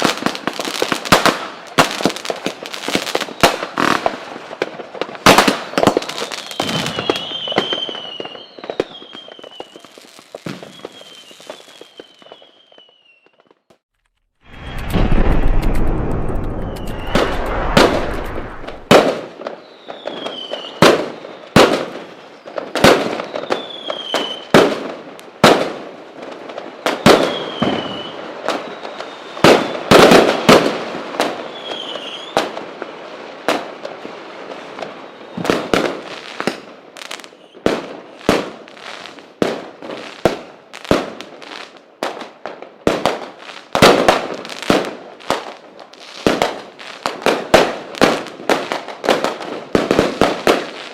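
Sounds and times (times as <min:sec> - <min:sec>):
falling firework whistles: 0:02.8 - 0:04.0, 0:05.3 - 0:13.8, 0:14.5 - 0:24.6, 0:26.8 - 0:30.7, 0:31.3 - 0:33.0, 0:34.6 - 0:39.2
loud firework bangs: 0:14.5 - 0:19.5.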